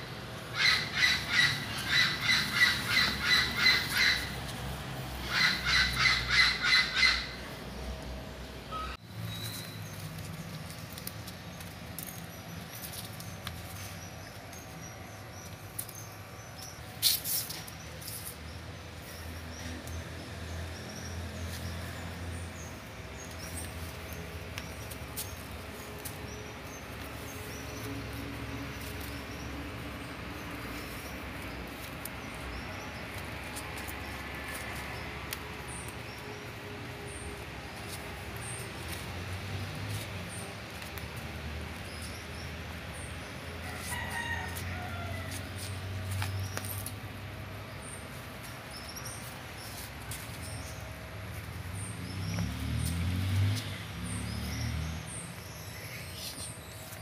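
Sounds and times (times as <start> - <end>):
small birds chirping: 0.5 - 8.0.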